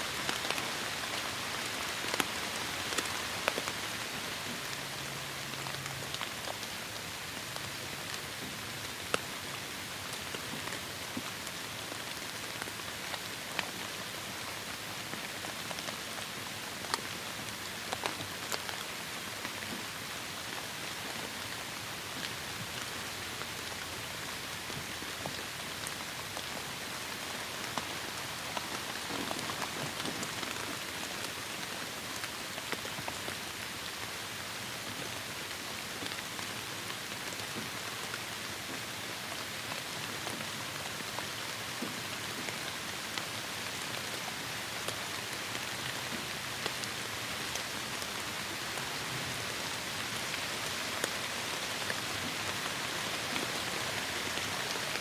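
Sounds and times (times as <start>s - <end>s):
raindrops tapping on surfaces: 0.2s - 3.8s, 10.0s - 20.0s, 22.1s - 33.4s, 36.0s - 55.0s
heavy rain falling: 22.2s - 34.0s, 37.0s - 55.0s.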